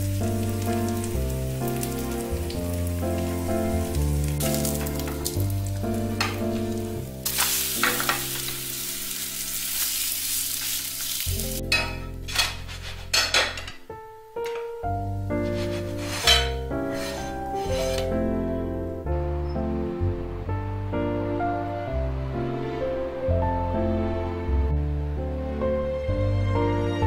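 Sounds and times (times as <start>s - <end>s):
batter sizzling in a frying pan: 0.0s - 13.2s
background music: 0.0s - 27.0s
spatula scraping a pan: 11.7s - 13.6s, 15.3s - 18.2s.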